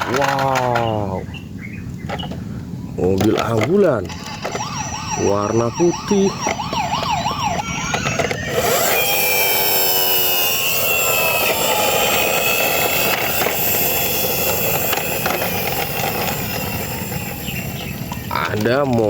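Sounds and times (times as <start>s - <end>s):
engine-like drone with gliding whines: 3.1s - 19.0s
siren wail: 4.0s - 18.7s.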